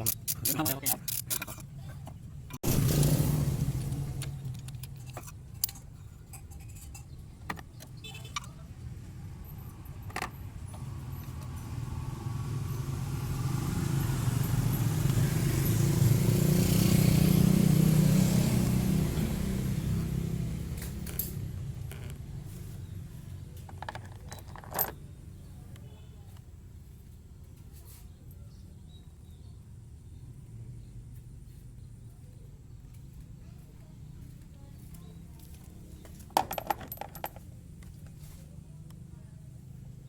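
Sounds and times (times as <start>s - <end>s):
car engine rumbling: 0.0s - 25.6s.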